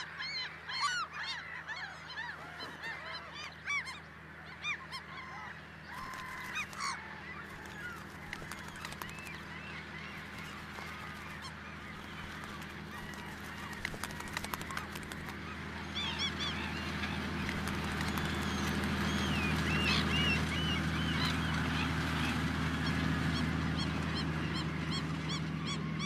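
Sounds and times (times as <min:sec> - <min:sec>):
gulls calling: 0:00.0 - 0:26.0
steady low hum: 0:05.4 - 0:23.2.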